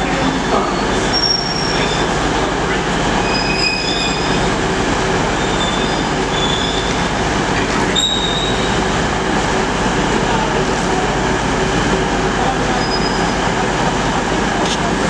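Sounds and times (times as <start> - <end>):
train wheels rumbling on rail: 0.0 - 15.0
wheel squeals: 3.2 - 4.4, 5.4 - 7.0, 8.0 - 8.8, 12.8 - 13.4.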